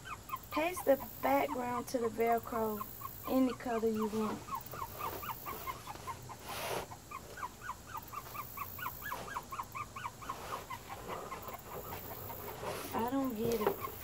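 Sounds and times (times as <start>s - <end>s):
handling rustle: 10.2s - 14.0s.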